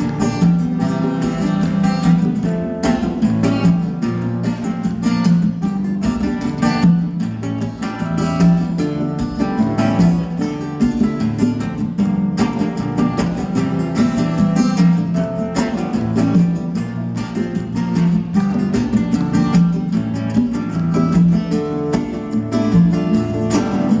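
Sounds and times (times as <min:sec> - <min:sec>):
acoustic guitar chords: 0:00.0 - 0:24.0.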